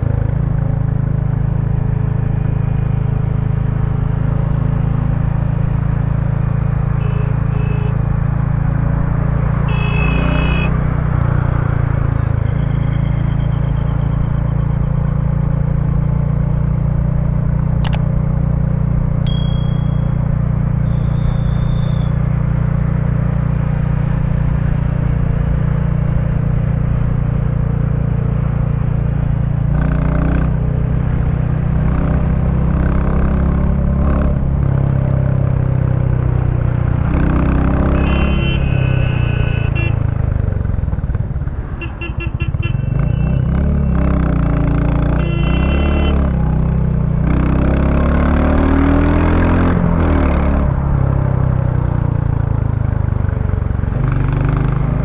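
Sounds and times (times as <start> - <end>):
short high beeps: 19.3 - 20.3.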